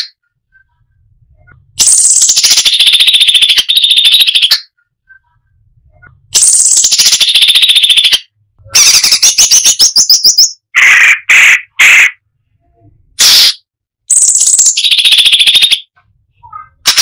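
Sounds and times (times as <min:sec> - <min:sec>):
songbird singing rattling trills: 0:01.8 - 0:05.2, 0:06.0 - 0:08.3, 0:14.1 - 0:15.8.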